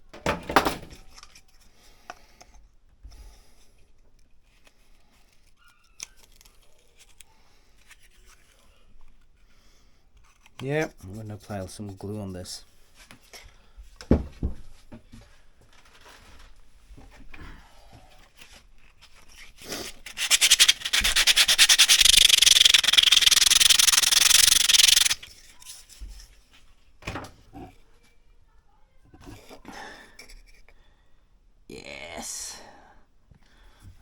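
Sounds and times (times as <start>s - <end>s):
rapid scraping or sanding: 19.8s - 25.3s.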